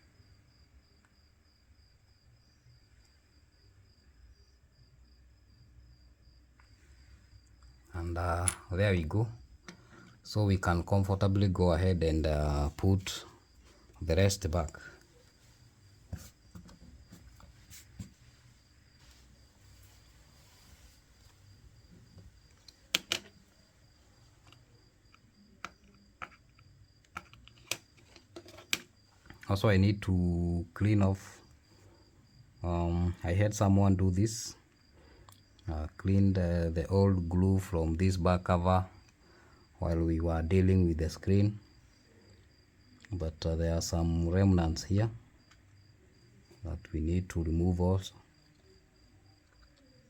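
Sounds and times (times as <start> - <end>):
cricket chirping: 0.0 - 50.0
small parts and tools clicking: 22.1 - 29.5.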